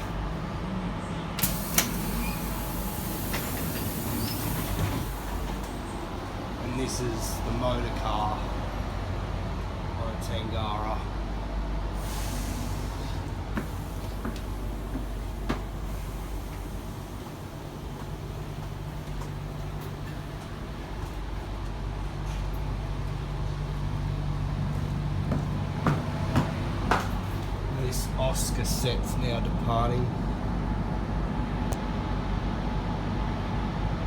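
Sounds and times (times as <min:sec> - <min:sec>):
train motor hum: 0:00.0 - 0:34.0.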